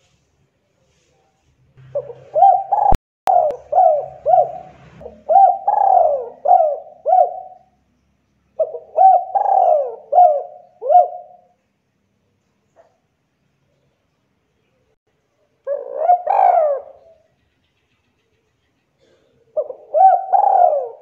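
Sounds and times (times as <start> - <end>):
dove cooing: 1.8 - 7.8, 8.6 - 11.6, 15.6 - 17.3, 19.0 - 21.0.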